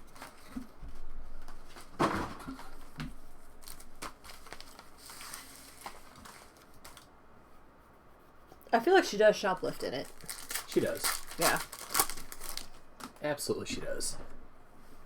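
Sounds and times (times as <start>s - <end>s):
card wrappers crinkling and tearing: 3.6s - 7.1s, 9.6s - 13.3s
cards being handled: 3.6s - 7.1s.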